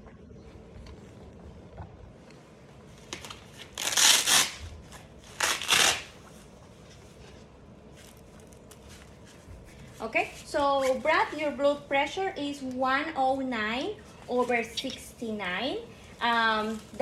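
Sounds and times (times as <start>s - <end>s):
velcro fastener ripping open: 3.0s - 6.2s.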